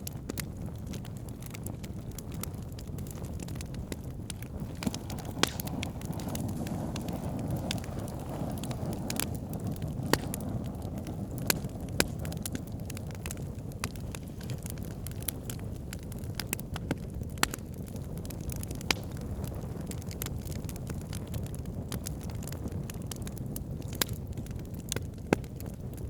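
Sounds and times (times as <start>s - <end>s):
fire crackling: 0.0s - 26.0s
low rumble of flames: 0.0s - 26.0s
sharp wood pops: 4.7s - 6.6s, 10.0s - 10.5s, 16.8s - 17.6s.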